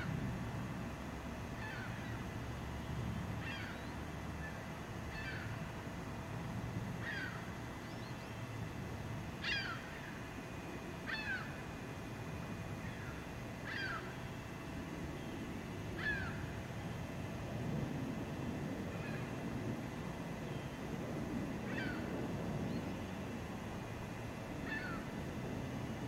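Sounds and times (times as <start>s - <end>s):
bird calling: 1.6s - 2.4s, 3.4s - 5.7s, 7.0s - 8.4s, 9.4s - 10.4s, 11.0s - 11.6s, 12.8s - 14.6s, 16.0s - 16.6s, 21.6s - 23.1s, 24.6s - 25.2s.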